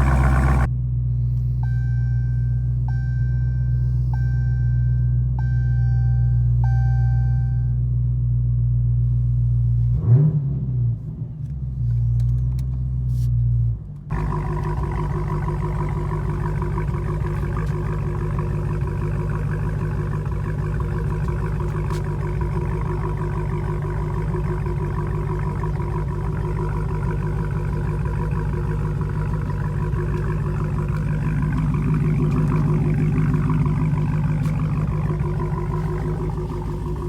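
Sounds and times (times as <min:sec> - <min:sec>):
car engine idling: 0:00.0 - 0:00.7, 0:14.1 - 0:37.0
engine revving: 0:00.0 - 0:00.7, 0:14.1 - 0:37.0
car warning chime: 0:01.6 - 0:07.8.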